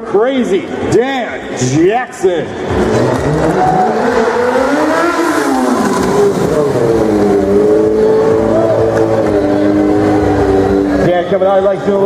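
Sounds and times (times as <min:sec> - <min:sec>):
motorcycle engine revving: 0:02.7 - 0:11.1.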